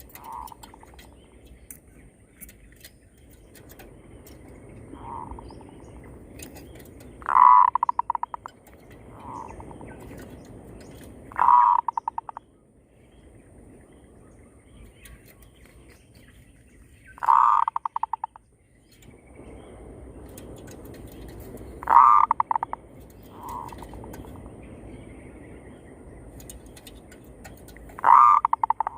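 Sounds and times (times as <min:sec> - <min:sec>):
doves cooing: 0:00.0 - 0:01.2, 0:03.6 - 0:12.4, 0:17.2 - 0:18.4, 0:20.3 - 0:24.6, 0:26.5 - 0:28.9.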